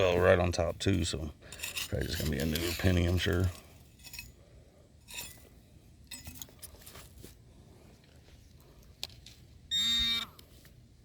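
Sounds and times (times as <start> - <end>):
hand tool scraping soil: 0.0 - 4.4
metal detector tone: 9.7 - 10.3.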